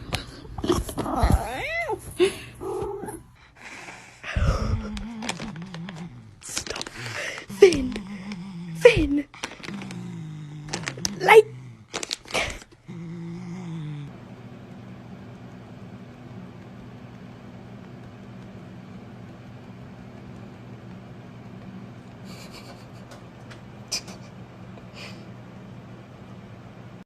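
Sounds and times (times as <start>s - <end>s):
low machine hum: 0.0s - 27.0s.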